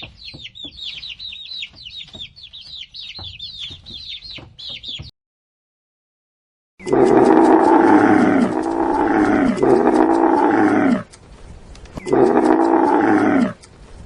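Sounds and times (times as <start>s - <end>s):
lion roaring: 6.8s - 11.1s, 12.0s - 13.6s.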